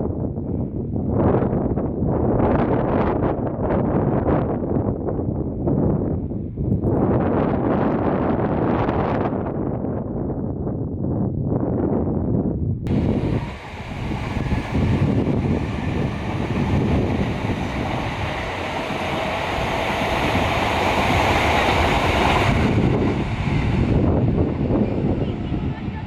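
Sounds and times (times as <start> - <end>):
wind buffeting microphone: 0.0 - 26.0
steady rushing hiss: 12.9 - 24.1.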